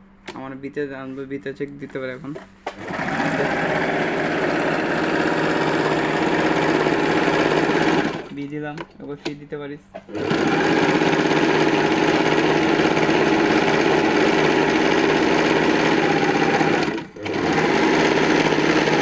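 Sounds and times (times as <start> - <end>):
electric sewing machine running: 2.7 - 8.4, 10.1 - 19.0.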